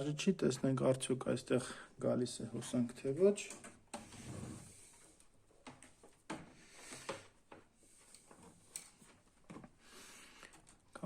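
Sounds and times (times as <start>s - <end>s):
faint clicks and knocks of handling: 2.6s - 11.0s.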